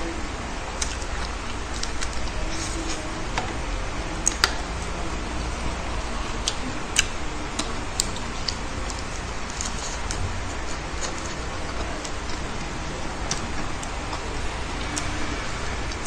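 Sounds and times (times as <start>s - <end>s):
low hum and hiss: 0.0s - 16.0s
chewing lettuce crunches: 0.8s - 3.5s, 4.2s - 16.0s
sharp snaps: 4.2s - 4.9s.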